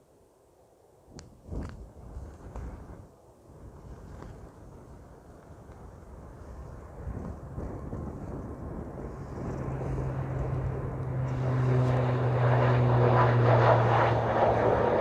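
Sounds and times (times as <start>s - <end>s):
airliner engines: 0.1s - 15.0s
low hum: 7.6s - 15.0s.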